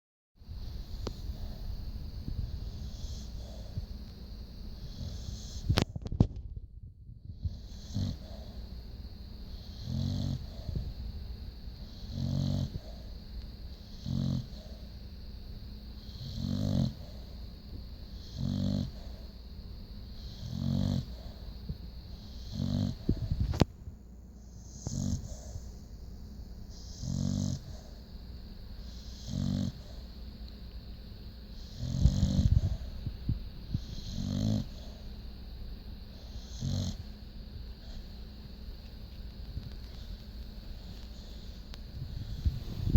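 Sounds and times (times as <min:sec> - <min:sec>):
faint breath hiss: 0:00.5 - 0:06.2, 0:15.9 - 0:30.7, 0:31.5 - 0:42.9
dog snoring: 0:00.6 - 0:01.8, 0:02.4 - 0:04.0, 0:04.7 - 0:06.0, 0:07.3 - 0:11.0, 0:11.7 - 0:15.0, 0:16.0 - 0:19.4, 0:20.1 - 0:23.6, 0:24.4 - 0:25.9, 0:26.6 - 0:28.1, 0:28.8 - 0:30.2, 0:31.5 - 0:33.0, 0:33.7 - 0:35.2, 0:36.0 - 0:38.2, 0:39.8 - 0:42.9.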